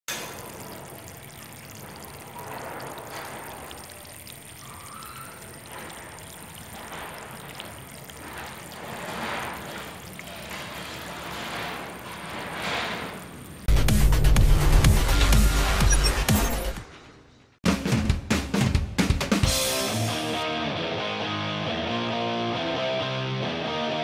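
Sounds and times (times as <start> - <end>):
liquid boiling in frying pan: 0.1 - 13.7.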